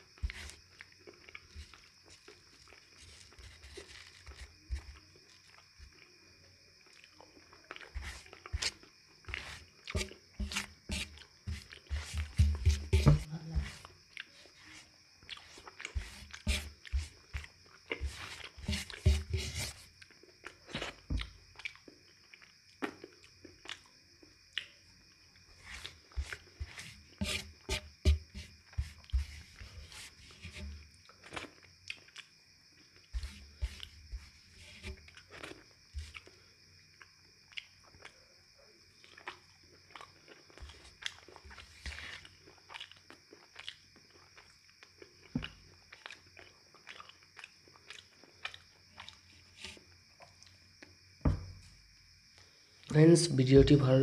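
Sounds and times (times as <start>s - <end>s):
person chewing: 0.2s - 6.1s, 6.8s - 12.6s, 13.8s - 19.3s, 20.0s - 23.9s, 25.6s - 29.8s, 30.7s - 32.3s, 33.0s - 38.3s, 39.0s - 49.4s.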